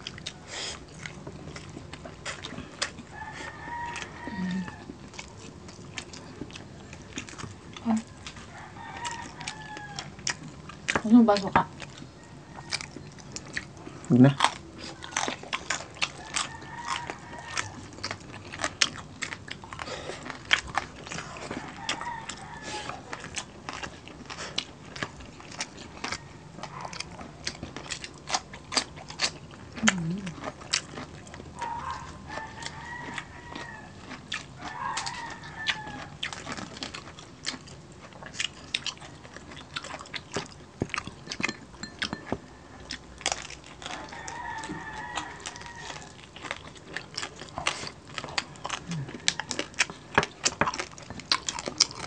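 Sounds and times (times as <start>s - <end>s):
crunching crispy pork skin: 1.1s - 11.4s, 12.1s - 41.5s, 42.5s - 52.0s
rooster crowing: 3.0s - 4.9s, 8.3s - 10.4s, 12.2s - 13.1s, 16.0s - 18.0s, 21.2s - 23.2s, 26.0s - 27.0s, 31.6s - 36.3s, 43.8s - 46.2s.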